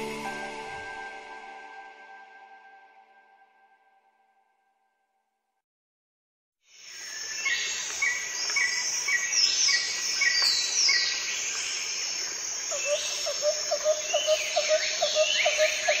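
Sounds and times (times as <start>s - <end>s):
bird chirping: 7.0s - 16.0s.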